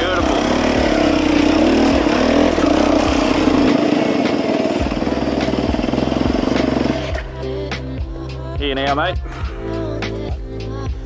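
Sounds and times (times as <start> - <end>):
dirt bike engine running: 0.0 - 7.3.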